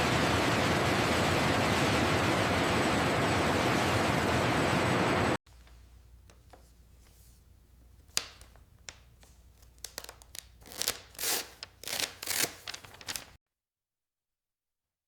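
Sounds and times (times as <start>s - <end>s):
handling taps and scrapes: 5.5s - 9.4s.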